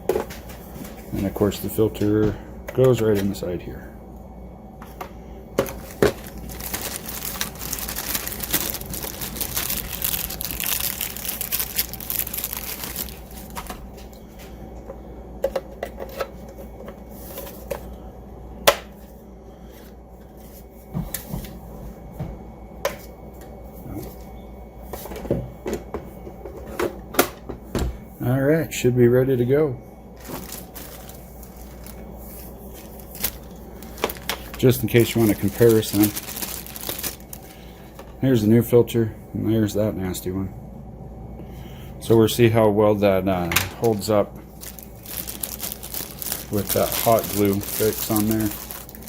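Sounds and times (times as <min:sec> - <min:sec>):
plastic rustling and rubbing: 0:05.6 - 0:14.1, 0:30.2 - 0:37.6, 0:43.8 - 0:49.0.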